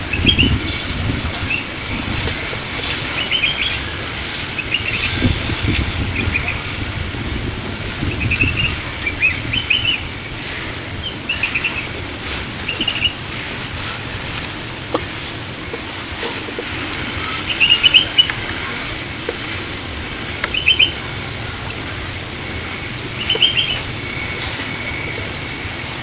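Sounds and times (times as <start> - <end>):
small birds chirping: 0.0 - 6.8, 7.7 - 26.0
steady low rumble: 0.0 - 26.0.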